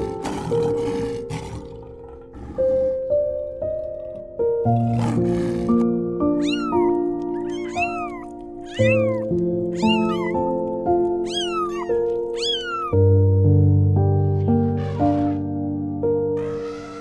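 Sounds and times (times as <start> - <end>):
background music: 0.0 - 17.0
kittens meowing: 6.4 - 13.1.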